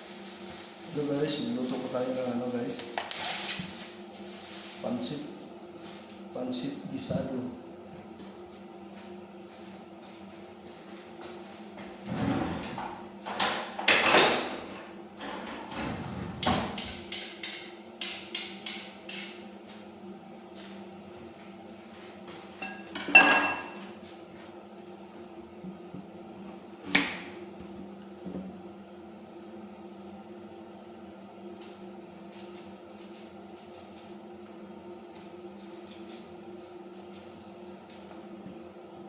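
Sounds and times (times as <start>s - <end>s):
kitchenware clattering: 22.6s - 23.9s.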